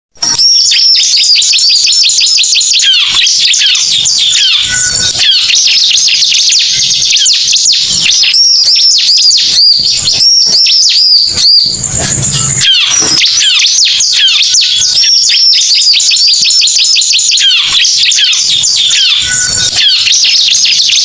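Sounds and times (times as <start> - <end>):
fast high sweeping bird chirps: 0.3 - 21.0.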